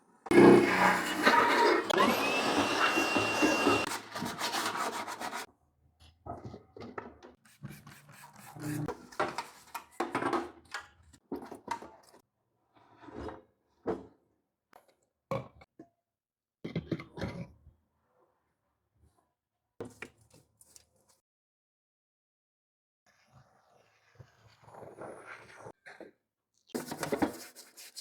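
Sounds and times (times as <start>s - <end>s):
power tool running: 0.3s - 4.1s
rubbing and scraping strokes: 0.3s - 5.5s, 7.4s - 8.9s, 26.8s - 28.0s.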